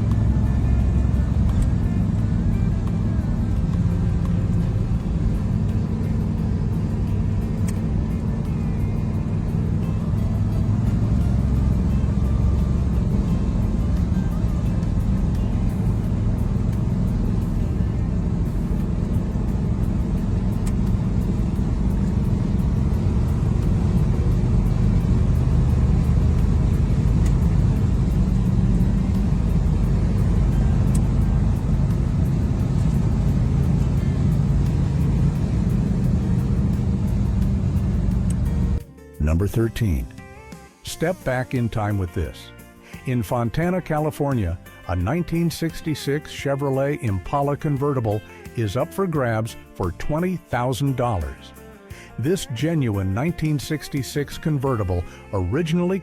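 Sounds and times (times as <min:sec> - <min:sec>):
car engine rumbling: 0:00.0 - 0:38.8
background music: 0:00.0 - 0:56.0.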